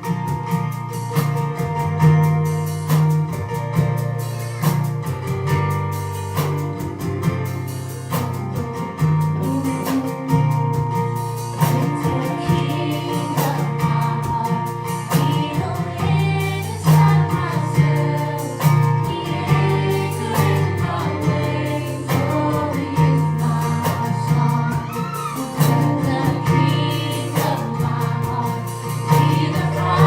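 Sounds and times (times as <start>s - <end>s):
gospel band playing: 0.0s - 30.0s
people singing: 6.2s - 30.0s.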